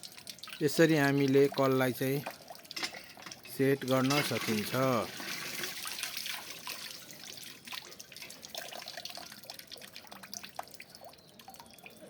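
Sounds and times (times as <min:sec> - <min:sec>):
water dripping: 0:00.0 - 0:12.0
water splashing from pump spout: 0:00.0 - 0:12.0.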